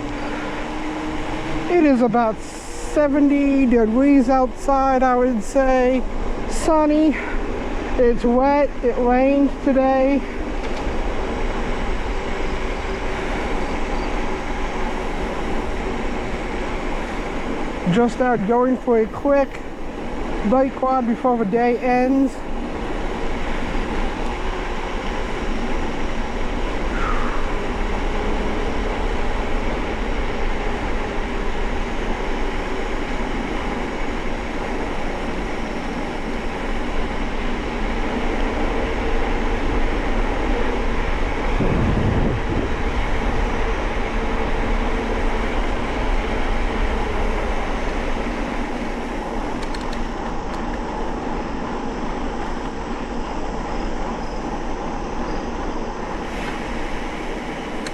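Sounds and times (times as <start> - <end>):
bicycle tyres on wet road: 0.0 - 4.7, 56.2 - 57.9
wind buffeting microphone: 37.1 - 51.3.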